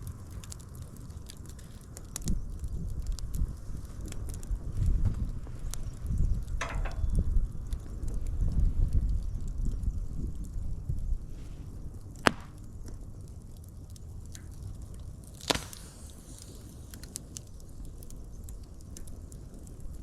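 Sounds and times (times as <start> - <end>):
wood fire crackling: 0.0 - 20.0
loud sharp pops: 12.2 - 12.7, 15.4 - 16.5.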